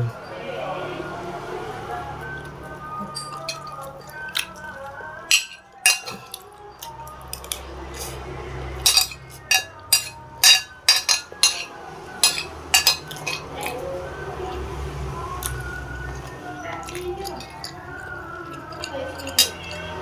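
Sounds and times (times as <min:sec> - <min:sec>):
cutlery clinking on plate: 0:03.0 - 0:04.6, 0:05.3 - 0:07.6, 0:08.8 - 0:13.8, 0:16.8 - 0:20.0.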